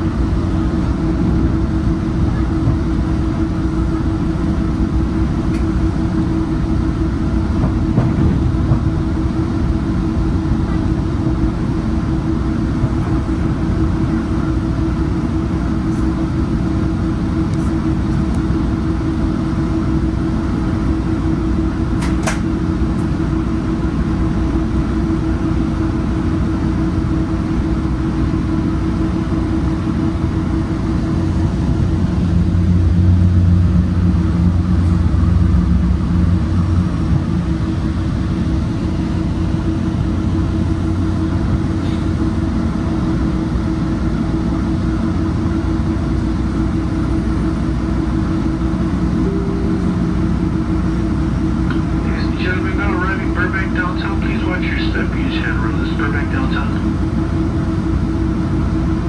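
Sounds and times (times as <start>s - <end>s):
train rumbling on track: 0.0s - 59.0s
short sharp sound: 49.2s - 50.5s.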